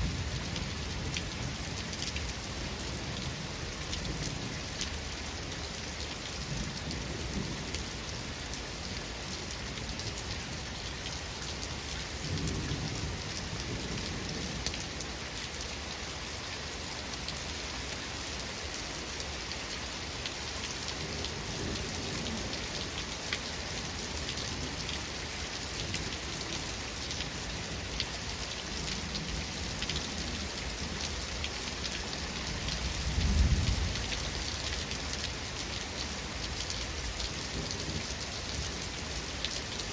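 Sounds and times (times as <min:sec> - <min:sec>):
steady rain falling: 0:00.0 - 0:39.9
low rolls of thunder: 0:33.0 - 0:34.2.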